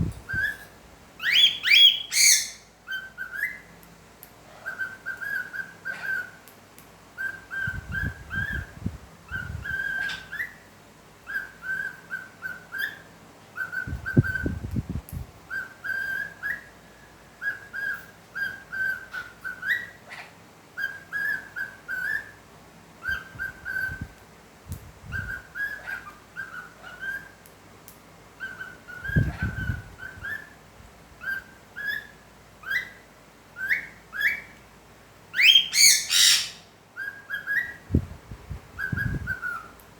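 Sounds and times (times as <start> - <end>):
parrot whistling a tune: 0.3 - 3.6, 4.6 - 6.4, 7.2 - 10.6, 11.3 - 14.4, 15.5 - 16.8, 17.4 - 20.0, 20.8 - 22.4, 23.0 - 24.1, 28.4 - 30.6, 33.6 - 34.5, 35.4 - 37.9, 38.8 - 39.8.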